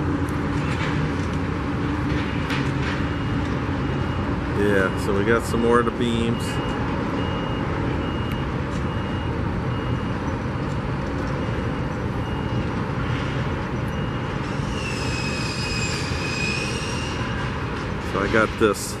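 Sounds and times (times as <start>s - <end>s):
heavy machinery rumble: 0.0s - 19.0s
backup alarm beeping: 2.1s - 14.8s.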